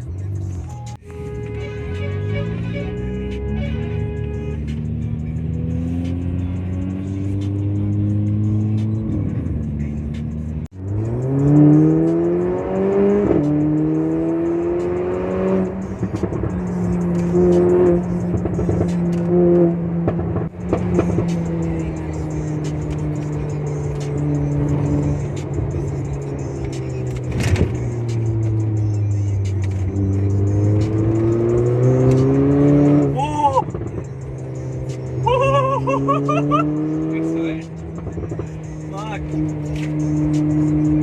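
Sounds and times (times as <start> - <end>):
car engine accelerating: 0.0 - 41.0.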